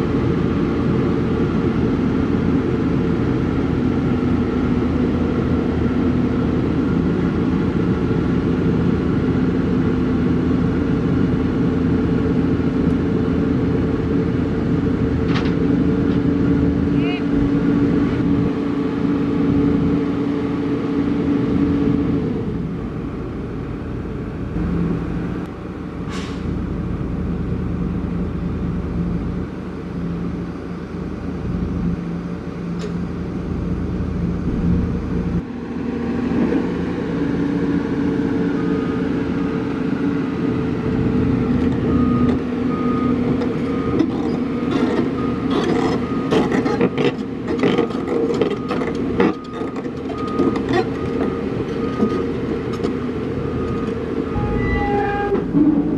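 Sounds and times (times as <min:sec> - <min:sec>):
heavy diesel engine running: 0:00.0 - 0:55.9
backup alarm beeping: 0:53.5 - 0:55.3.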